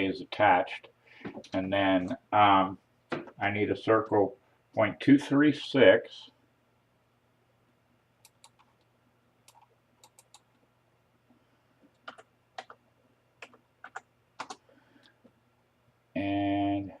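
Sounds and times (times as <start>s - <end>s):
computer keyboard typing: 8.2s - 8.8s, 9.4s - 10.5s, 11.9s - 12.8s, 13.4s - 14.6s.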